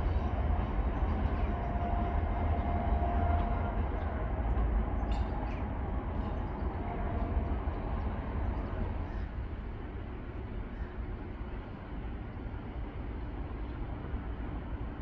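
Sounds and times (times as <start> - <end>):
passenger train rolling past: 0.0 - 15.0.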